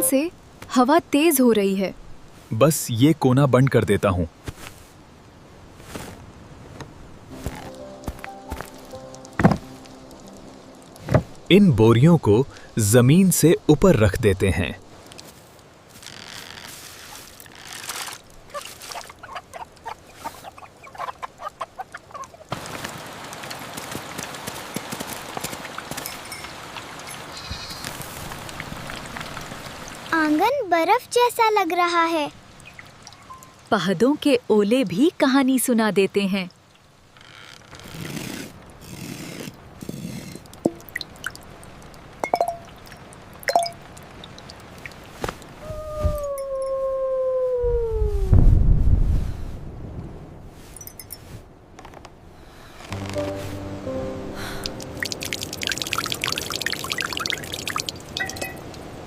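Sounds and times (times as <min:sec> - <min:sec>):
steady hiss: 0:06.3 - 0:17.6
chickens clucking: 0:18.5 - 0:22.5
water drops plinking: 0:25.9 - 0:27.3, 0:32.6 - 0:33.7, 0:40.5 - 0:45.0, 0:53.0 - 0:58.9.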